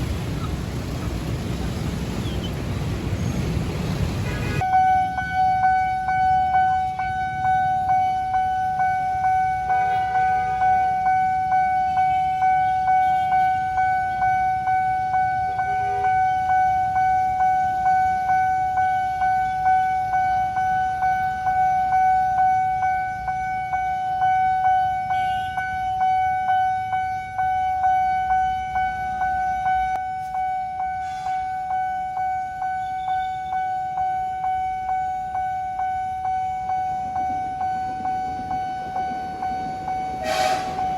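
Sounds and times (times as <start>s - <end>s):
road traffic rumble: 0.0s - 40.9s
vehicle horn toots: 4.2s - 4.8s, 25.1s - 25.7s, 40.2s - 40.9s
level crossing warning bell: 4.7s - 40.9s.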